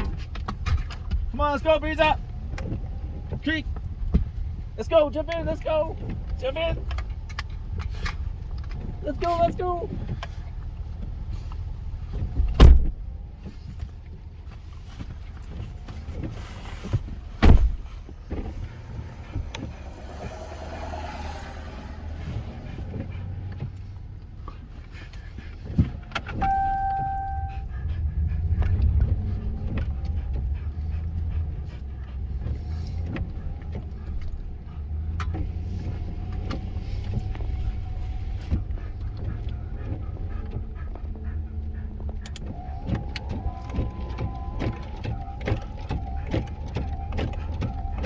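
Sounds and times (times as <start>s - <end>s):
truck engine idling: 17.9s - 35.1s
short electronic beep: 26.4s - 27.6s.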